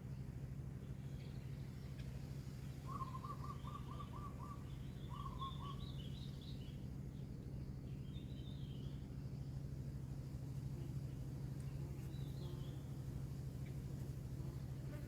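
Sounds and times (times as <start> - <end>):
steady low hum: 0.0 - 15.0
bird trilling: 2.8 - 6.2.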